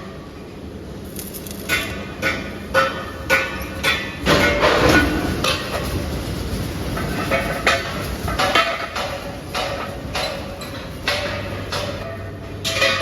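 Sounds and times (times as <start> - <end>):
hammer striking steel: 1.2 - 5.7, 7.3 - 13.0
metal clattering: 1.2 - 13.0.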